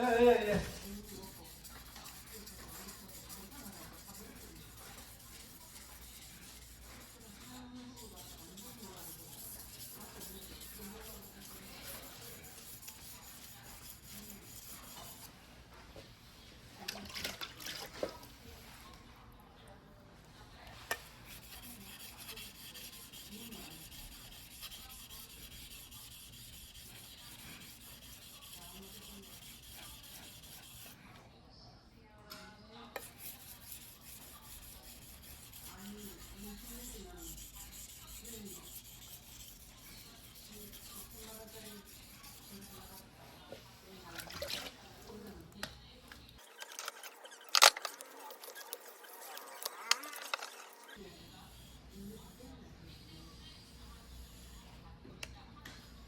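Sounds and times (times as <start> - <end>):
knife blade rubbing on whetstone: 0.0 - 15.3, 21.0 - 31.0, 33.0 - 43.0.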